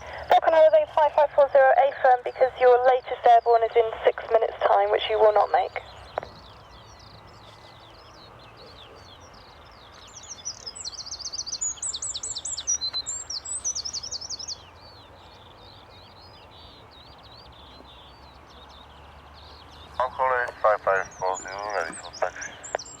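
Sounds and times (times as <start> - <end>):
songbirds singing: 0.0 - 23.0.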